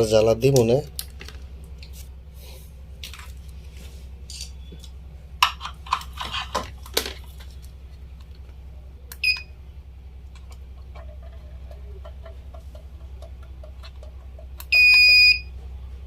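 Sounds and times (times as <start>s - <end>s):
low hum: 0.0s - 16.0s
short electronic beep: 14.7s - 15.5s.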